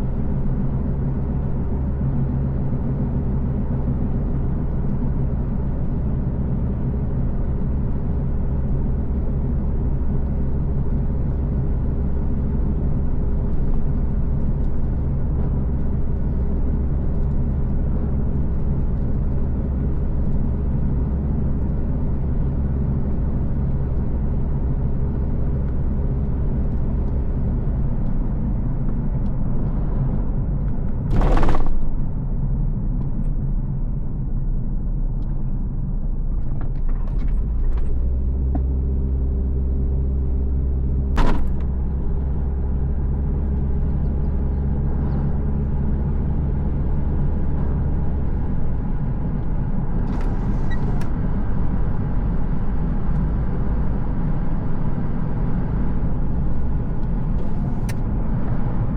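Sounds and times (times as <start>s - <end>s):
car engine and road rumble: 0.0s - 58.9s
loud rush of noise: 31.1s - 32.2s.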